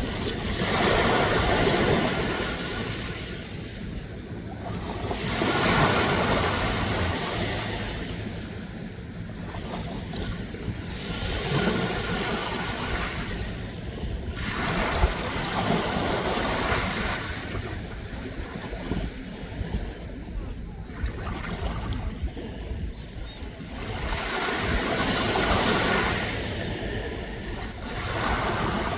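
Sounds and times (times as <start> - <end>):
sea waves washing: 0.0 - 22.9, 23.5 - 28.9
wind noise: 9.2 - 28.9.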